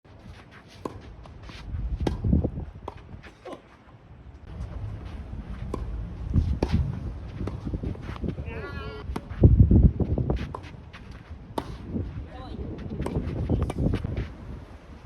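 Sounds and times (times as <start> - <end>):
tennis balls struck by rackets: 0.7 - 3.8, 4.5 - 8.4, 9.0 - 9.4, 10.2 - 12.0, 12.9 - 14.2
wind buffeting microphone: 1.6 - 3.3, 4.4 - 15.0.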